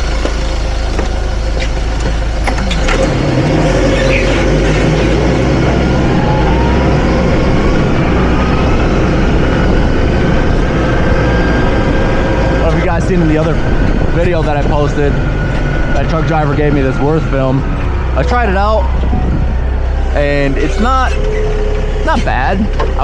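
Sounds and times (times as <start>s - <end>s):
forklift engine revving: 0.0s - 23.0s
faint rising whine: 16.0s - 22.0s.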